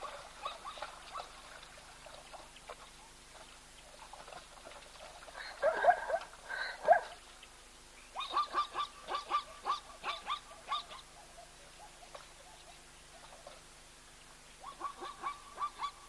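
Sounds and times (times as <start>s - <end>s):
wild bird calling: 8.0s - 13.6s, 14.5s - 16.0s.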